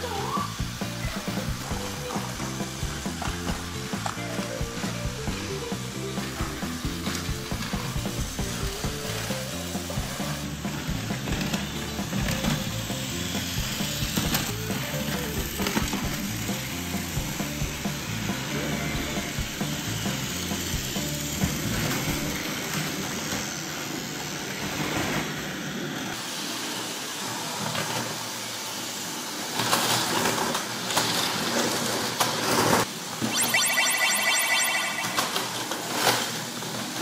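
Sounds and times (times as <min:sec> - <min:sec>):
toy trains rattling on plastic track: 0:05.8 - 0:32.8.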